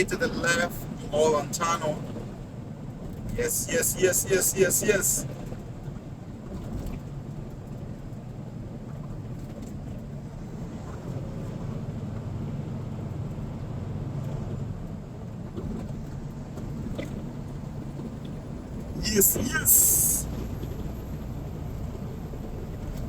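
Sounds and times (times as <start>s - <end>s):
truck diesel engine rumble: 0.0s - 5.8s, 17.3s - 23.0s
road noise: 0.0s - 23.0s.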